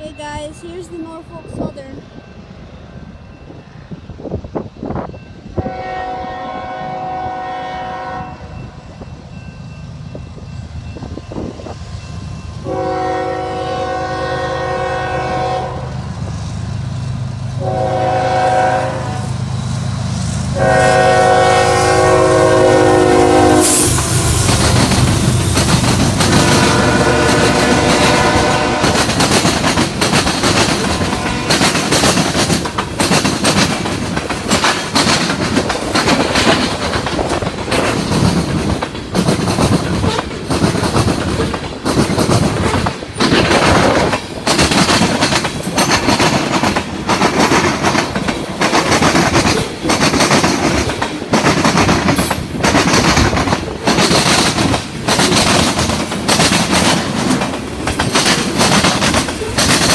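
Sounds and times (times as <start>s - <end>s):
freight train rumbling past: 0.0s - 59.9s
wheels clacking over rail joints: 23.4s - 59.9s.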